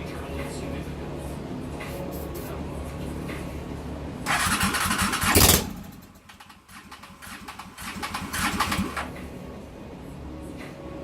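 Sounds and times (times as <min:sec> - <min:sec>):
rapid engine clatter: 0:04.2 - 0:09.3
motorcycle engine burst: 0:04.3 - 0:09.1.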